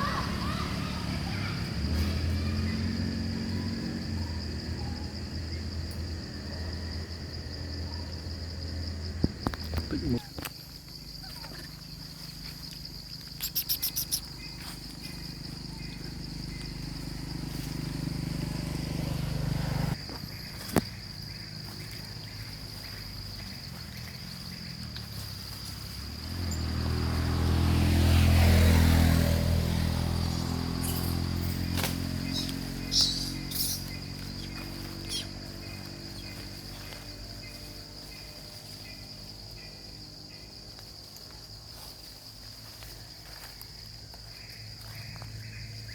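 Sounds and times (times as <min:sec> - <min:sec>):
insects droning: 0:00.0 - 0:45.9
brief clicks and chirps: 0:13.3 - 0:14.3.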